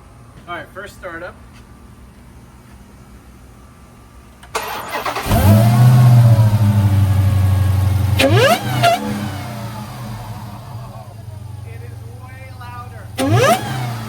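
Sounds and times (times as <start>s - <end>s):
car engine starting and idling: 4.3s - 14.0s
engine revving with rising whine: 5.0s - 11.9s, 13.0s - 14.0s.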